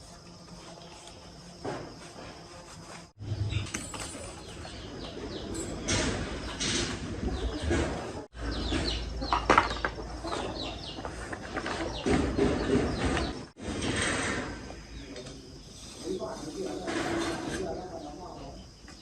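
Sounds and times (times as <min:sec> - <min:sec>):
birds chirping: 0:03.2 - 0:13.6.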